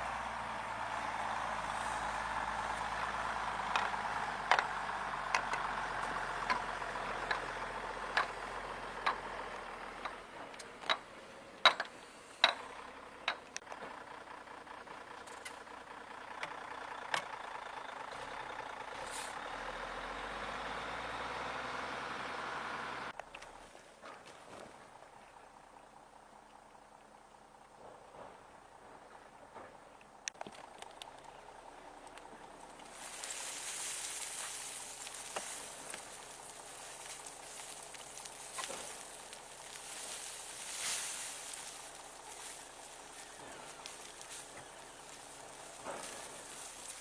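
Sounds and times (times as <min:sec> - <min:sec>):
wood-processing machine running: 0:00.0 - 0:23.1, 0:30.5 - 0:47.0
sharp cracks and knocks: 0:34.2 - 0:47.0.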